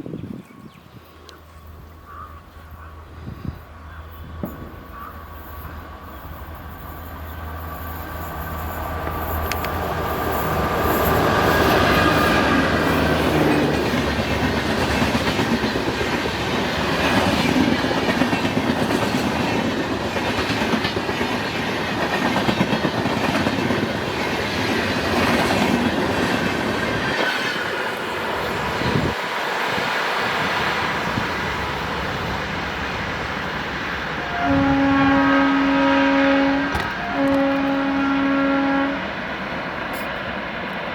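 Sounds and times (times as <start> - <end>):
train wheels clattering over rails: 8.0 - 27.9
train horn blast: 34.2 - 39.2.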